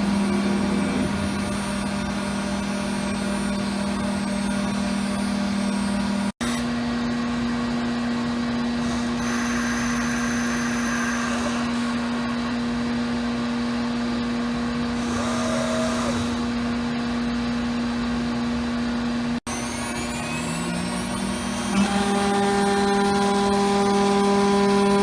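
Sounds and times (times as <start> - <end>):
short rising and falling tone: 0.0 - 2.3
router machine drone: 0.0 - 14.1, 14.8 - 25.0.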